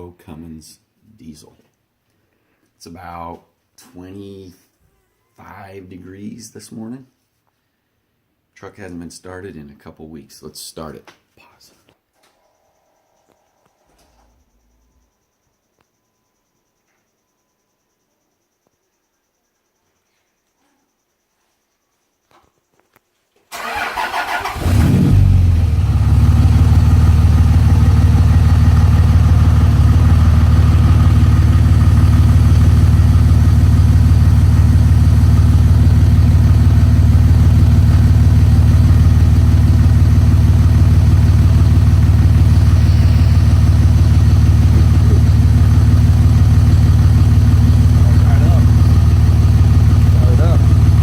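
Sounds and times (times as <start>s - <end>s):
starter motor cranking: 23.6s - 24.9s
diesel engine idling: 23.6s - 51.0s.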